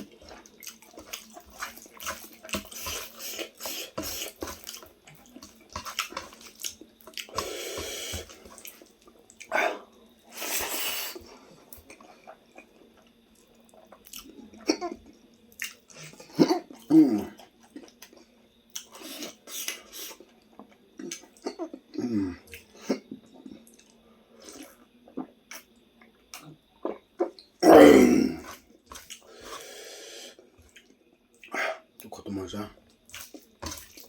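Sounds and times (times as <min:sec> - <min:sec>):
wet chewing and lip-smacking: 0:00.0 - 0:07.5, 0:08.2 - 0:09.6, 0:11.7 - 0:14.6, 0:15.5 - 0:16.2, 0:33.1 - 0:34.0
slurping: 0:00.0 - 0:11.2.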